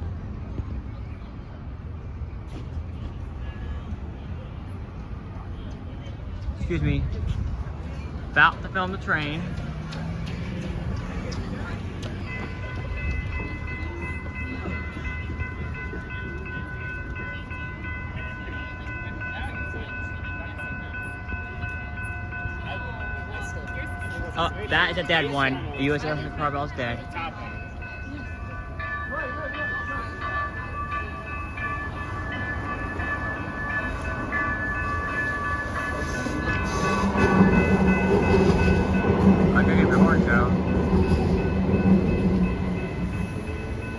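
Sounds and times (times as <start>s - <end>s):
train rumbling: 0.0s - 43.9s
high ringing tones: 11.6s - 43.9s.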